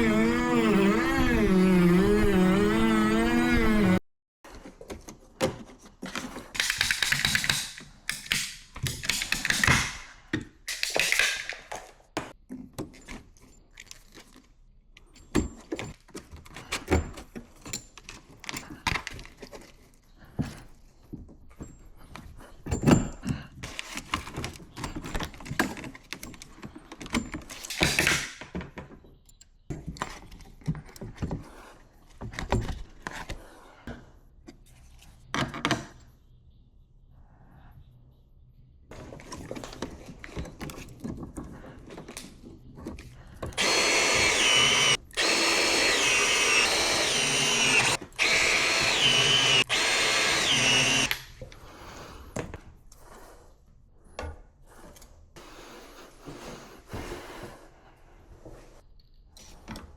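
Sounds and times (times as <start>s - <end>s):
short rasping bursts: 43.6s - 51.1s.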